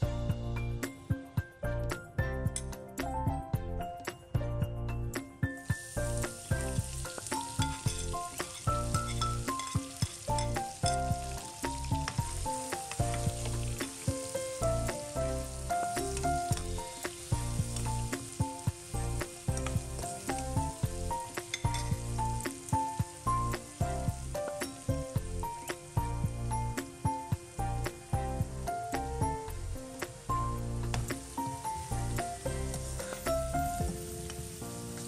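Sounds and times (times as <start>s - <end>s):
food sizzling in hot oil: 5.4s - 35.0s
spatula scraping a pan: 5.9s - 20.6s, 21.3s - 22.7s, 32.4s - 33.5s.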